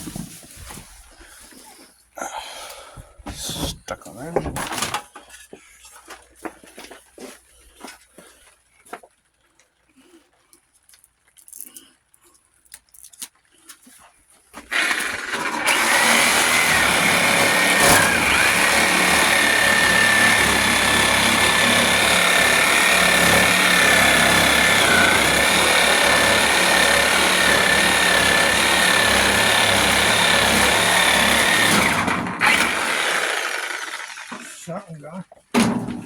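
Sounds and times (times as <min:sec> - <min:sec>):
reciprocating saw cutting: 0:14.7 - 0:34.8.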